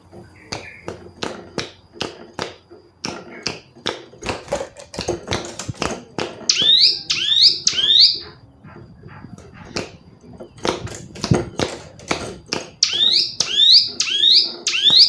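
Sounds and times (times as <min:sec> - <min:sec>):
bird ticking notes: 0:00.2 - 0:01.7, 0:06.4 - 0:10.8, 0:12.7 - 0:15.0
bird swooping calls: 0:06.5 - 0:09.9.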